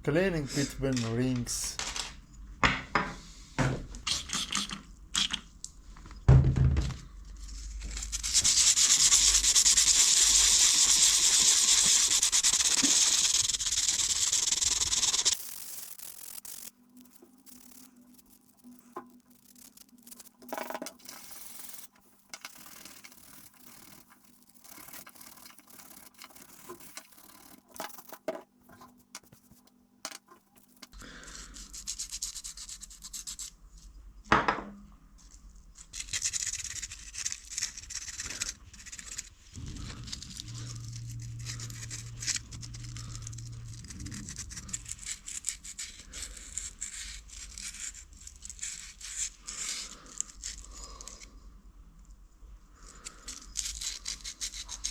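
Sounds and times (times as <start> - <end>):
hand scraping metal piston: 10.4 - 29.6
short low hum: 39.6 - 45.3.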